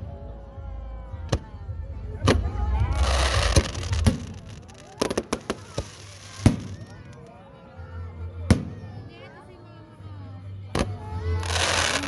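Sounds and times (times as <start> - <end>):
fireworks bangs: 2.9 - 6.9, 11.4 - 12.0
firework hiss: 3.0 - 6.9, 11.4 - 12.0.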